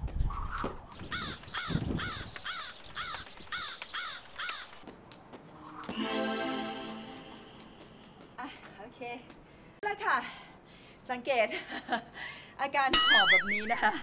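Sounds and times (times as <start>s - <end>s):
crow cawing: 1.1s - 4.7s
music: 5.9s - 7.7s.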